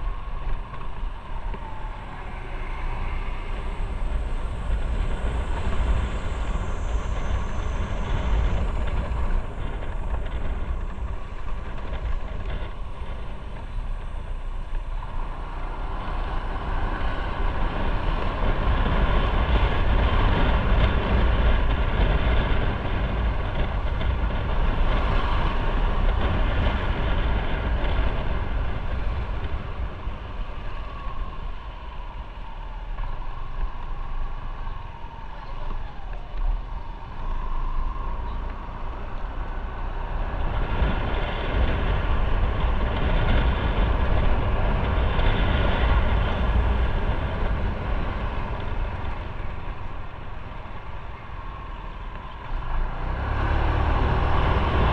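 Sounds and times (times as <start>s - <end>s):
motorcycle engine rumble: 0.0s - 54.9s
road and wind noise: 0.0s - 54.9s.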